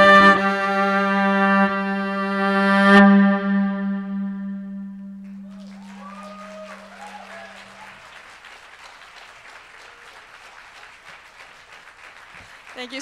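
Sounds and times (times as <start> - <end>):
amplified viola note: 0.0 - 7.8
audience applauding: 5.2 - 13.0
audience whooping: 5.3 - 11.8.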